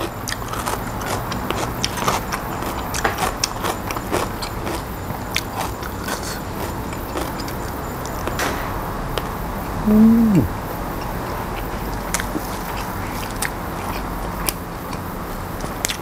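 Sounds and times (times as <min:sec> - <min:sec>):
person chewing and eating: 0:00.0 - 0:07.8, 0:09.8 - 0:10.5.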